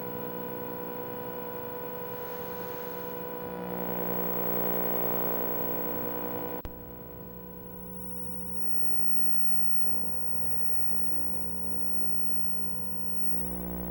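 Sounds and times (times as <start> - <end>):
electrical buzz: 7.8 - 13.9.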